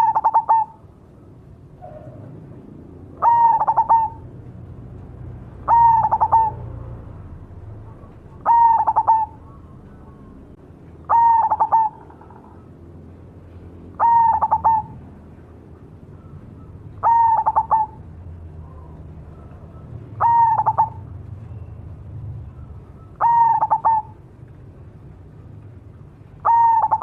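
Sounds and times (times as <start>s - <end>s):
dove cooing: 0.0s - 0.9s, 3.1s - 4.4s, 5.5s - 7.0s, 7.9s - 12.7s, 14.0s - 15.0s, 16.1s - 21.6s, 22.5s - 24.2s, 26.4s - 27.0s.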